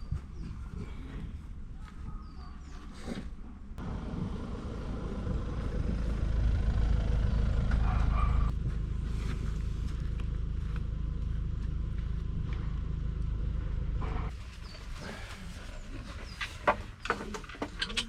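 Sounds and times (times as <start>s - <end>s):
low rumble of moving vehicle: 3.4s - 18.0s.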